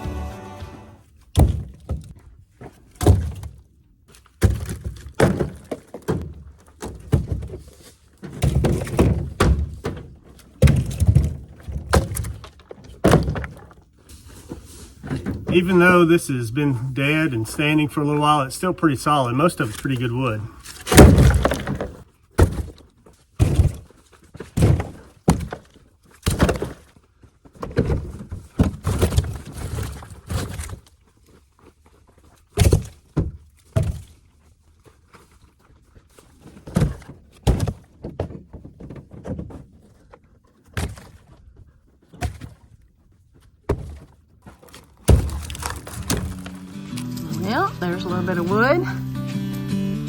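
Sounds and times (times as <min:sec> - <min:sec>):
heavy wooden thunks: 0:01.3 - 0:03.7, 0:04.4 - 0:13.8, 0:15.0 - 0:17.7, 0:20.6 - 0:22.8, 0:23.4 - 0:26.8, 0:27.6 - 0:30.7, 0:36.6 - 0:39.9, 0:43.6 - 0:44.2, 0:45.0 - 0:46.7.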